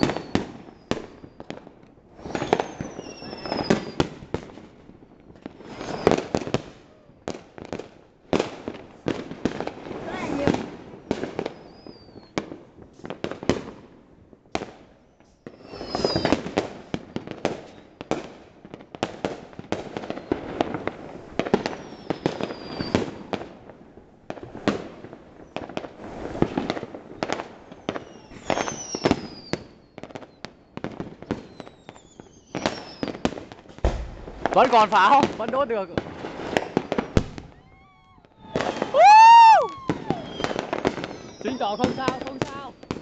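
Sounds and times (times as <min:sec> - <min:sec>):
whistling fireworks: 0:00.0 - 0:43.0
firecrackers banging: 0:31.2 - 0:43.0.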